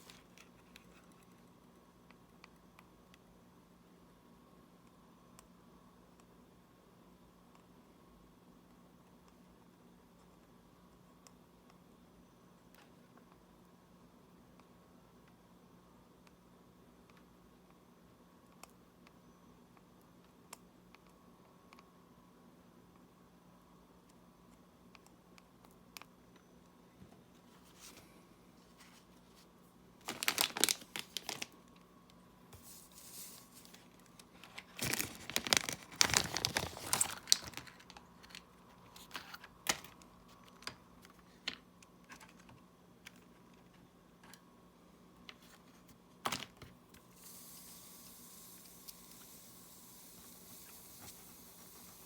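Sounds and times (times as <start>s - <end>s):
plastic packaging rustling: 27.6s - 31.7s, 32.6s - 39.8s
steady hiss: 32.5s - 35.2s, 47.0s - 52.0s.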